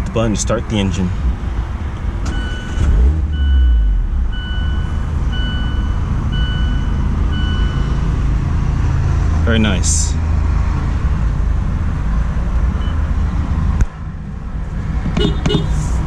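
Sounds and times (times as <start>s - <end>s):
car engine starting and idling: 1.0s - 9.0s
dashboard warning chime beeping: 2.3s - 8.1s.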